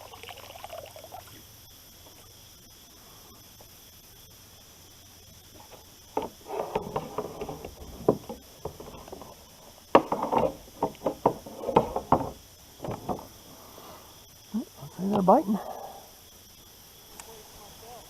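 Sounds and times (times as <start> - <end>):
knocking and clattering in kayak: 5.6 - 13.4.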